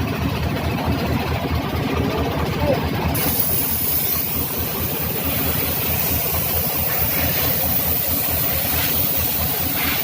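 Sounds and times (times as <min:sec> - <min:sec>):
engine idling: 0:00.0 - 0:10.0
compressed air hissing: 0:03.2 - 0:10.0.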